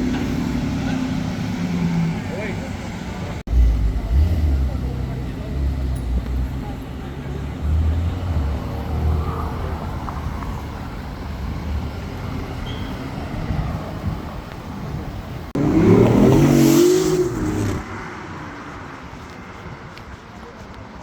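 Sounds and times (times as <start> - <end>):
car engine accelerating hard: 0.0 - 10.9, 15.5 - 18.4
street traffic rumbling: 0.0 - 21.0.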